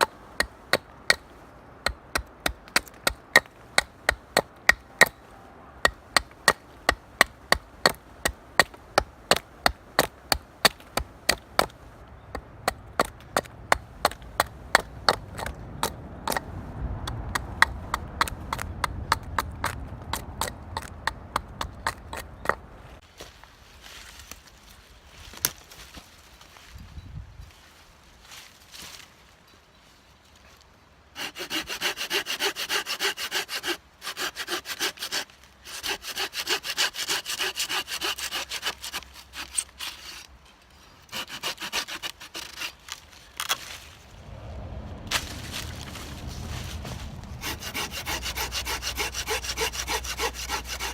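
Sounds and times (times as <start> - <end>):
low rumble: 13.5 - 23.0, 43.6 - 50.2.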